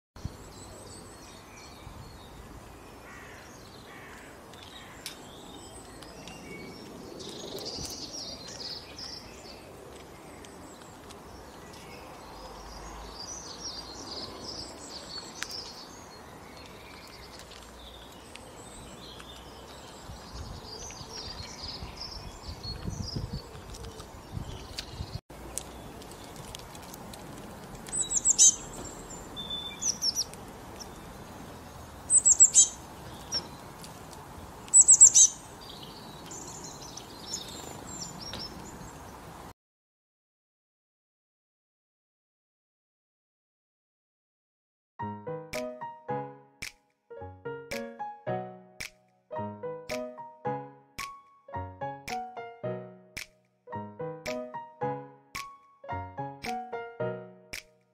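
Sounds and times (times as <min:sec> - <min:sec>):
songbirds chirping: 0:00.2 - 0:39.5
loud high bird chirps: 0:27.9 - 0:31.1, 0:32.0 - 0:33.6, 0:34.7 - 0:38.7.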